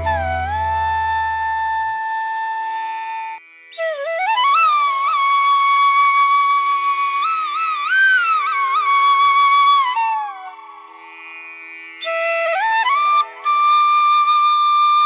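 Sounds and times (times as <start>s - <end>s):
steady drone: 0.0s - 1.8s
flute playing slow melody: 0.0s - 11.1s, 12.0s - 15.0s.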